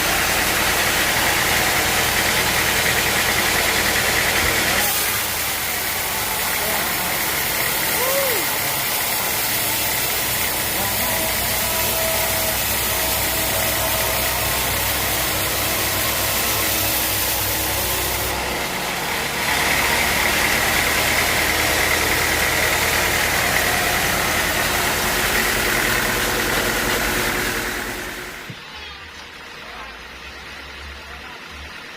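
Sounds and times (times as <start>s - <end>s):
sawmill machinery running: 0.0s - 28.6s.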